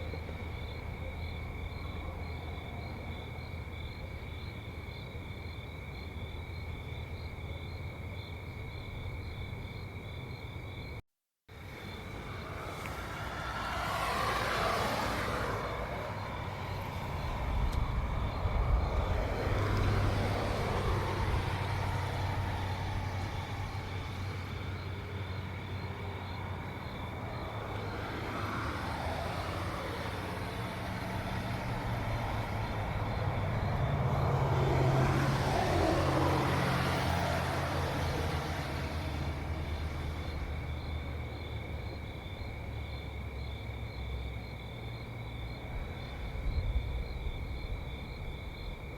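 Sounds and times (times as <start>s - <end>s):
crickets chirping: 0.0s - 48.9s
cars driving past: 11.5s - 48.9s.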